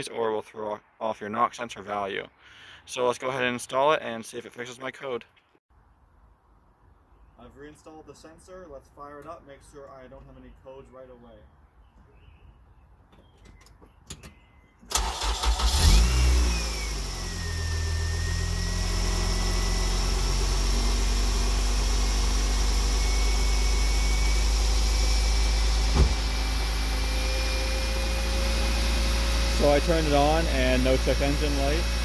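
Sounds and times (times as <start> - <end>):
car engine starting and idling: 14.9 - 32.0
short knock: 25.9 - 26.2.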